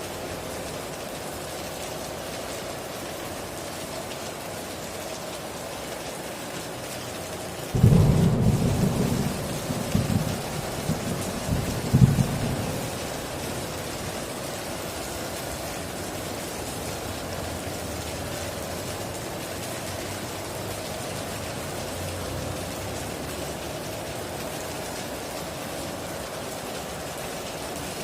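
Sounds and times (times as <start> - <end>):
heavy rain: 0.0 - 28.0
thunderclap: 7.8 - 13.3.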